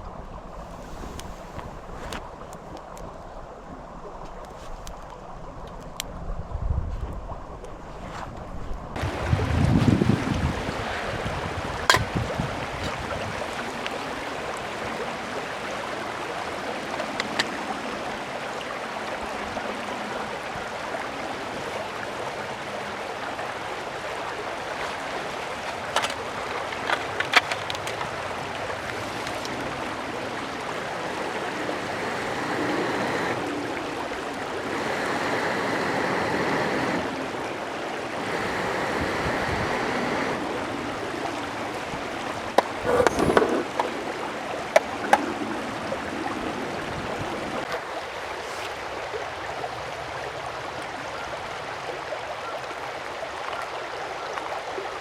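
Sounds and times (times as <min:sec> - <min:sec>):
mountain stream flowing: 0:08.9 - 0:55.0
sharp clicks: 0:17.0 - 0:17.5.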